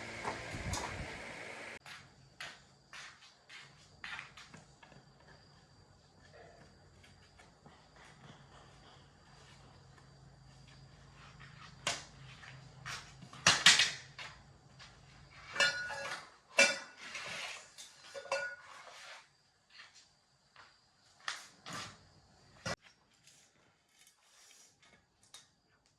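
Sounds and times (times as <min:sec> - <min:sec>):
metal objects clanking: 0:15.4 - 0:18.8.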